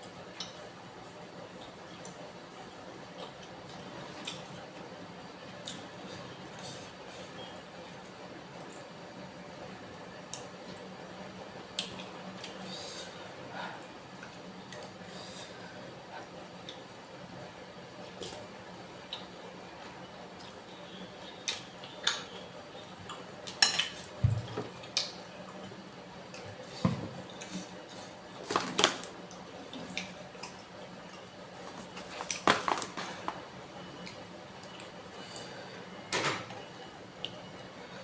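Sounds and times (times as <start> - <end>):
cutlery clinking against a bowl: 23.5 - 24.0.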